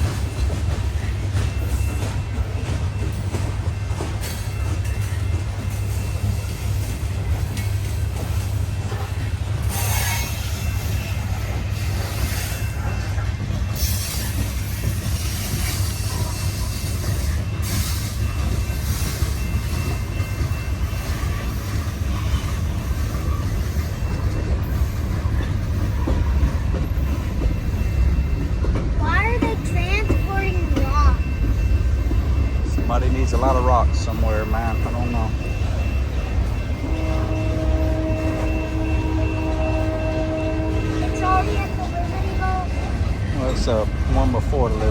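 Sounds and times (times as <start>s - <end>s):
freight train wheels rumbling: 0.0s - 44.9s
high wheel squeal: 9.6s - 28.5s.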